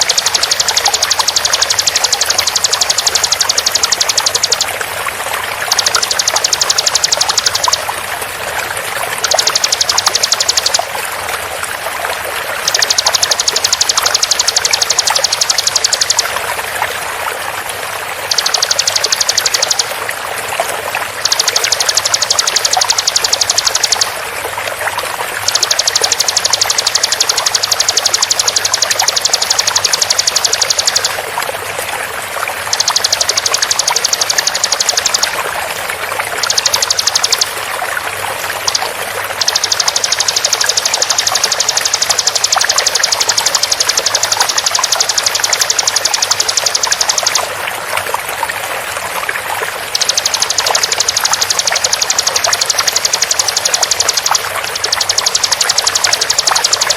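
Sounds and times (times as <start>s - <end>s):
bird high-pitched trills: 0.0s - 4.7s, 5.6s - 7.9s, 9.2s - 10.9s, 12.6s - 16.3s, 18.2s - 19.9s, 21.1s - 24.2s, 25.4s - 31.2s, 32.6s - 35.4s, 36.4s - 37.6s, 38.6s - 47.5s, 49.9s - 56.9s
flowing water rushing: 0.0s - 56.9s.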